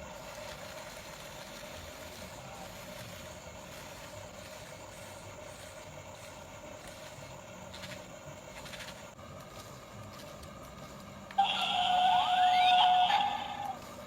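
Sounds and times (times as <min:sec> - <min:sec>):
motor humming steadily: 0:00.0 - 0:14.0.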